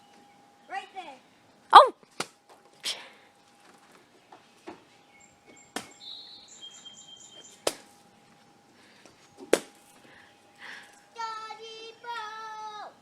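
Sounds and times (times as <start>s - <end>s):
bird chirping: 4.2s - 7.7s.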